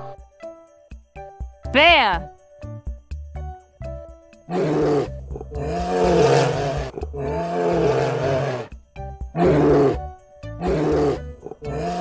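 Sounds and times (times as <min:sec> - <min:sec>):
background music: 0:00.0 - 0:12.0
bear roaring: 0:04.5 - 0:08.7, 0:09.4 - 0:12.0.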